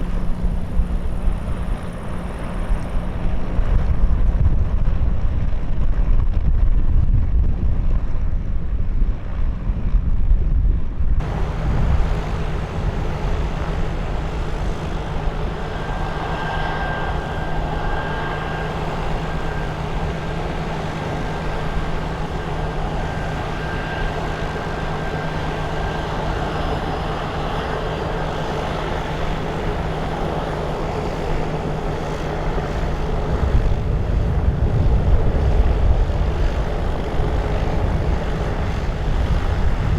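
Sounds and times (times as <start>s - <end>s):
aircraft engines running: 0.0s - 39.9s
wind buffeting microphone: 0.0s - 39.9s
thin high whistle: 13.1s - 28.2s.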